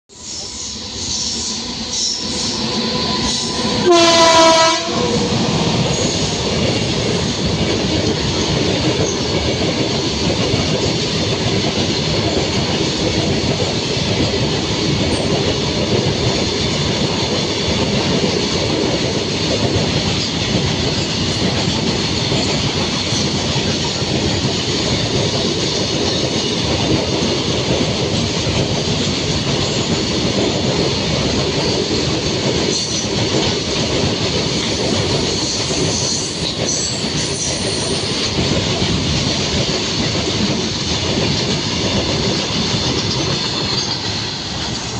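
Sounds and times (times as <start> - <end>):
freight train wheels rumbling: 0.1 - 44.9
train horn blast: 3.8 - 5.3.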